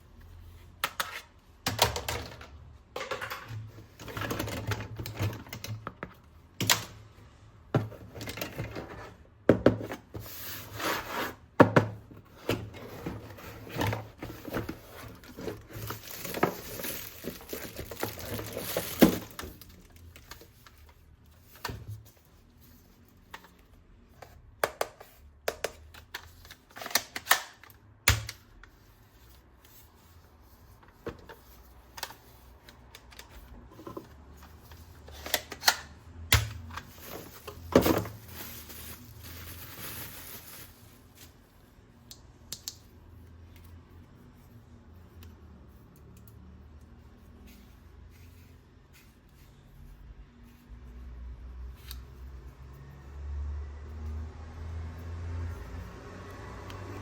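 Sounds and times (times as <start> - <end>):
packaging rustling: 13.0 - 20.8, 36.6 - 41.4.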